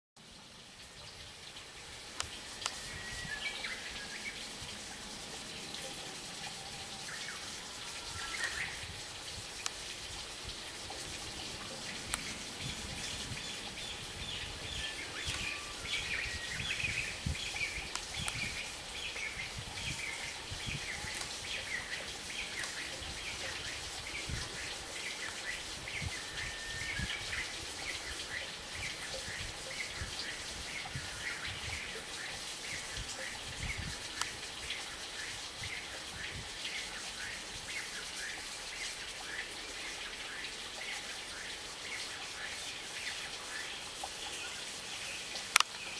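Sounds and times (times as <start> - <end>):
outdoor background noise: 0.2 - 45.9
small birds chirping and twittering: 0.6 - 45.9
short whistled bird calls: 14.8 - 16.9, 26.1 - 27.3.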